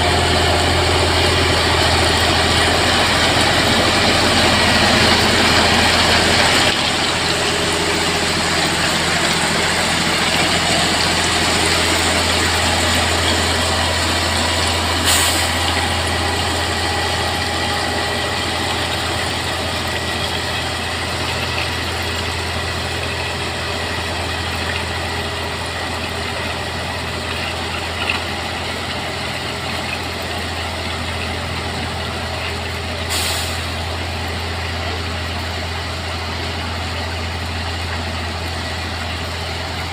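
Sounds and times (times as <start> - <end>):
diesel engine idling: 0.0 - 39.9
short air hisses: 15.0 - 15.7, 33.1 - 33.7.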